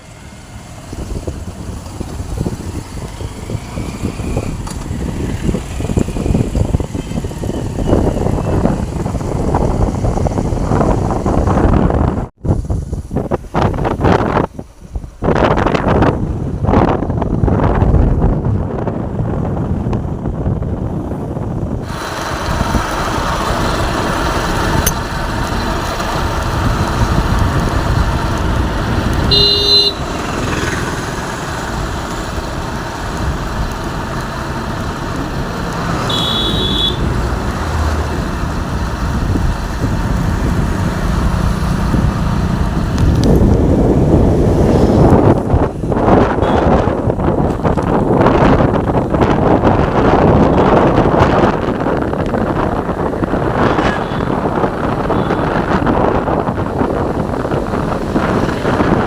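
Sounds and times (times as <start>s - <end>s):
road traffic rushing: 0.0s - 59.0s
wind noise: 0.0s - 59.0s
car horn toot: 29.2s - 30.2s, 36.0s - 37.2s, 46.4s - 46.8s, 55.0s - 55.6s.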